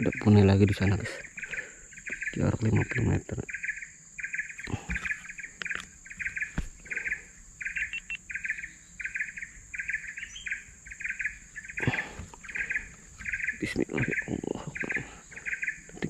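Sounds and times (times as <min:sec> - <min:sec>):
high-pitched insect drone: 0:00.0 - 0:16.0
short buzzy chirp: 0:07.8 - 0:08.2.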